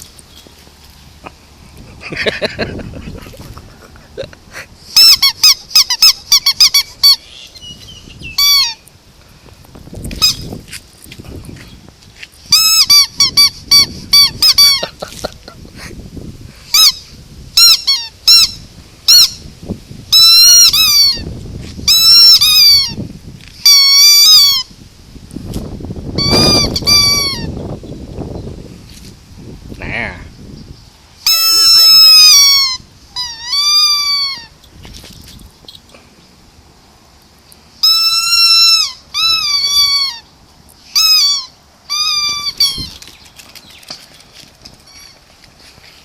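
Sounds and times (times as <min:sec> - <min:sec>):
rubber toy squeaking: 0:04.9 - 0:08.8, 0:10.1 - 0:10.6, 0:12.5 - 0:15.0, 0:16.7 - 0:17.0, 0:17.6 - 0:19.4, 0:20.1 - 0:23.0, 0:23.6 - 0:24.7, 0:26.2 - 0:27.6, 0:31.2 - 0:34.6, 0:37.8 - 0:40.3, 0:40.9 - 0:44.0, 0:44.6 - 0:45.4.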